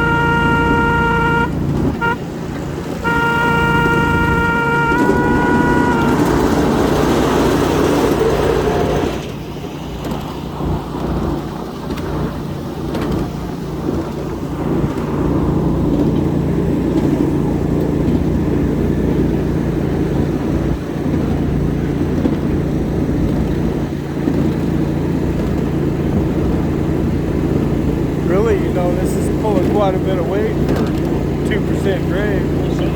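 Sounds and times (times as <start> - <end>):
train horn: 0.0 - 7.5
rushing noise: 0.0 - 23.1
ride-on train rumbling: 0.0 - 32.9.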